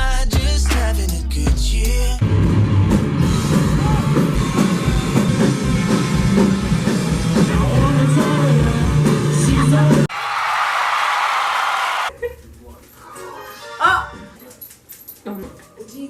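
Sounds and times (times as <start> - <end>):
pop-rock music with drum beat: 0.0 - 9.2.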